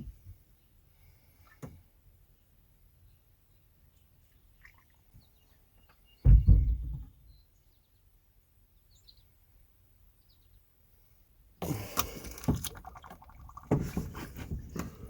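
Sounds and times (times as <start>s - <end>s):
faint bird chirps: 2.3s - 9.4s
heavy low thump: 6.2s - 7.2s.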